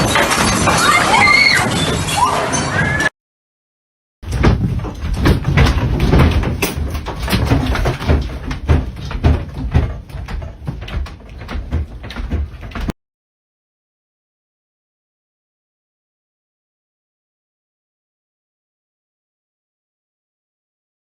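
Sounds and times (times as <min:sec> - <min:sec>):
doors and objects rattling: 0:00.0 - 0:03.1, 0:04.2 - 0:13.0.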